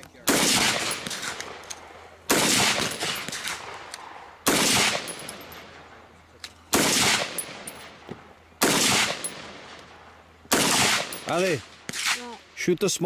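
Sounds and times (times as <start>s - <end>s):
loud gunshots with echo: 0.3s - 1.6s, 2.3s - 5.5s, 6.7s - 7.9s, 8.6s - 9.8s, 10.5s - 12.2s.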